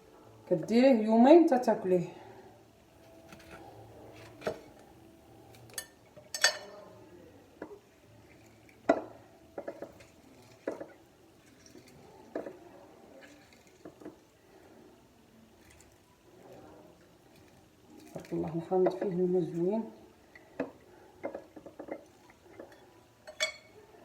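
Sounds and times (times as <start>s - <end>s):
utensils and dishes clinking: 5.4s - 6.9s, 21.2s - 23.8s.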